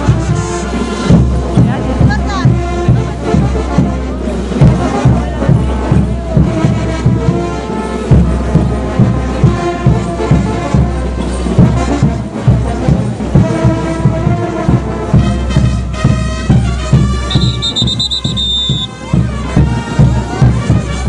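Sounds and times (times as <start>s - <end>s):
bass drum beat: 0.0s - 21.0s
brass band playing dance music: 0.0s - 21.0s
high steady whistle tone: 17.3s - 19.0s.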